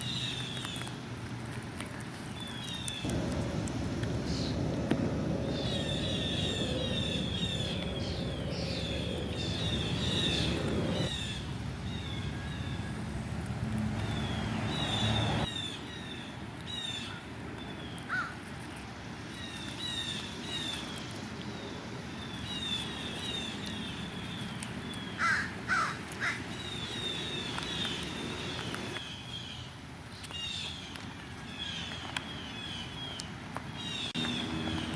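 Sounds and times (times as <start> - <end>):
small birds chirping: 0.0 - 34.9
low rumble: 3.0 - 15.5
crows cawing: 18.1 - 18.4, 25.2 - 26.5.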